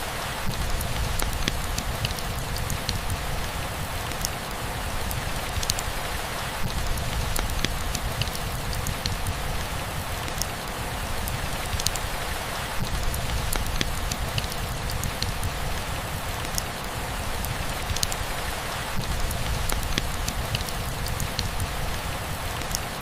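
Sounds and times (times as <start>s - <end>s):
rain hissing: 0.0s - 23.0s
drips ticking on a surface: 0.5s - 3.4s, 5.1s - 5.8s, 6.6s - 12.1s, 12.8s - 15.8s, 17.4s - 18.3s, 19.0s - 22.9s.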